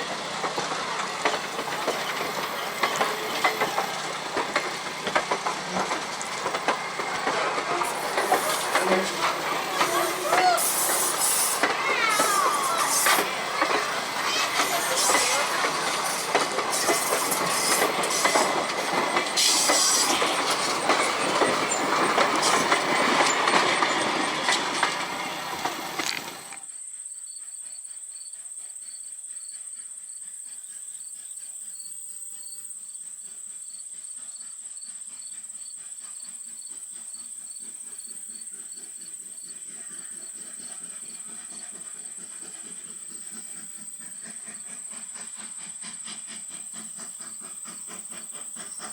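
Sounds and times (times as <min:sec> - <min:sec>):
train rushing past: 0:00.0 - 0:26.7
wheels clacking on rails: 0:00.0 - 0:26.7, 0:34.0 - 0:48.9.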